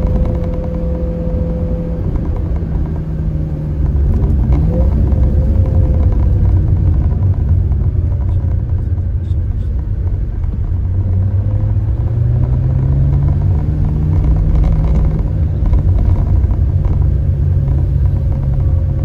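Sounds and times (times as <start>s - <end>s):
car engine drone: 0.0s - 19.0s
road rumble: 0.0s - 19.0s.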